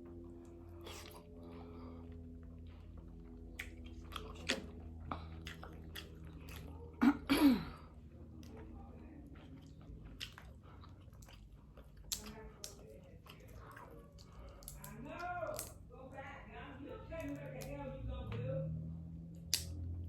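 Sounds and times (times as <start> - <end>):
chewing and biting seafood: 0.1 - 7.0, 7.9 - 15.9, 19.3 - 20.0.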